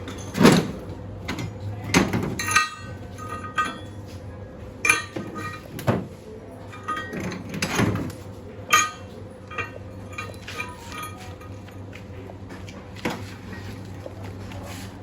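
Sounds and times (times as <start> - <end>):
metal tools clanking: 0.0 - 4.0, 4.8 - 6.1, 6.7 - 11.7.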